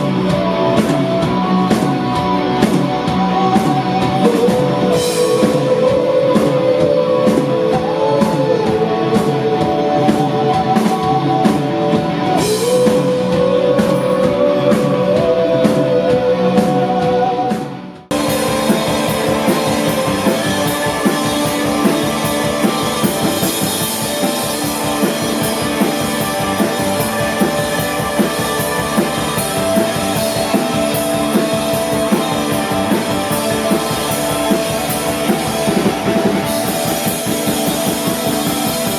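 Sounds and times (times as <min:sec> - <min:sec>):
electric guitar lead line: 0:00.0 - 0:38.9
live rock band playing: 0:00.0 - 0:38.9.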